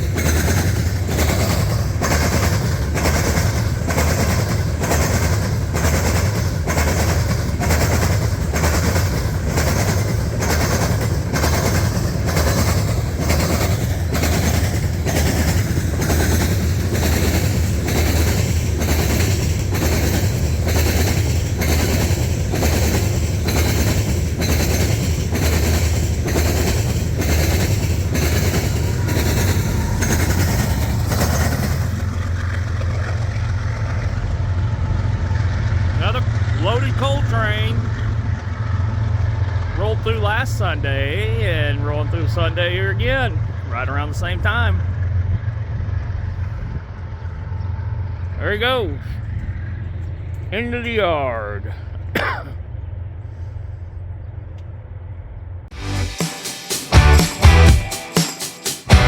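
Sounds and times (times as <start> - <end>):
train wheels clacking over rail joints: 0.0 - 40.8
freight train rumble: 0.0 - 59.0.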